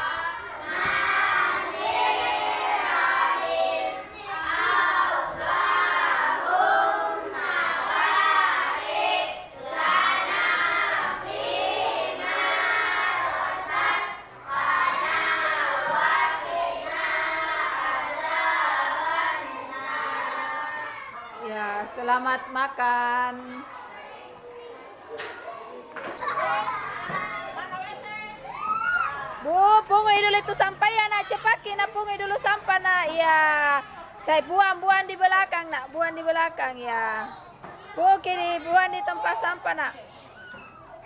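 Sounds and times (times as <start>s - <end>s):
children singing in unison: 0.0s - 21.0s.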